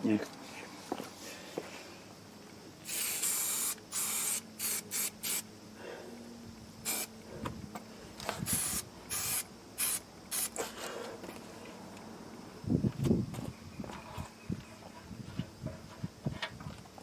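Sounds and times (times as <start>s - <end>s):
aerosol can spraying: 2.8s - 5.4s, 6.8s - 7.1s, 8.4s - 10.7s.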